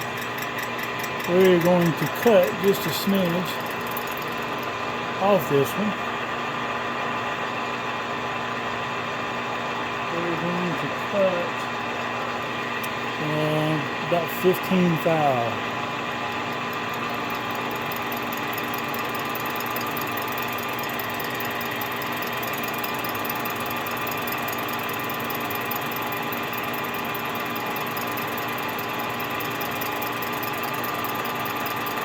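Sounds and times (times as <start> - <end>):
metal lathe humming: 0.0 - 5.8, 12.9 - 32.0.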